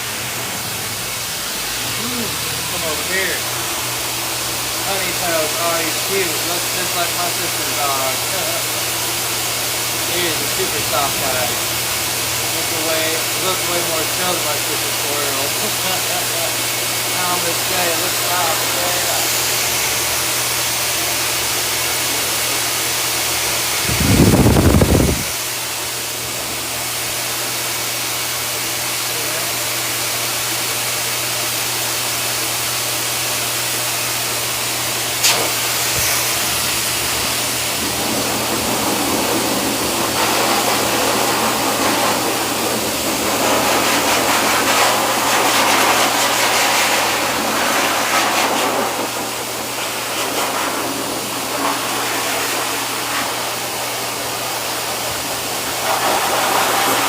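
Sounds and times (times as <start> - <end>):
dryer air rushing: 0.0 - 57.0.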